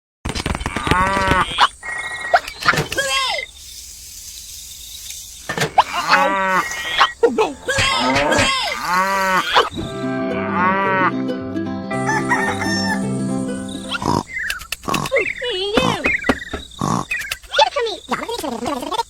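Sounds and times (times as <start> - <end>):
crowing-like animal calls: 5.8 - 9.8, 12.0 - 14.4
music with low note pattern: 9.8 - 14.2.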